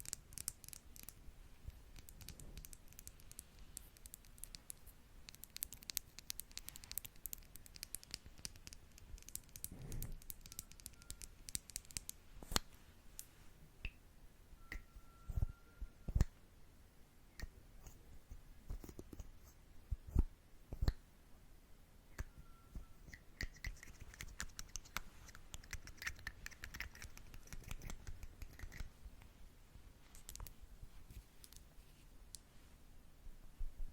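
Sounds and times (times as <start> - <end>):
brushes clicking and scratching: 0.0 - 13.3, 23.0 - 29.0.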